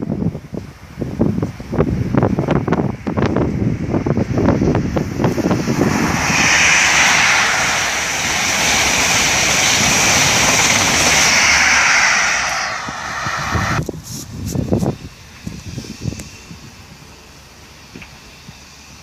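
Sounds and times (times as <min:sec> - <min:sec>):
train passing at speed: 0:01.8 - 0:14.0.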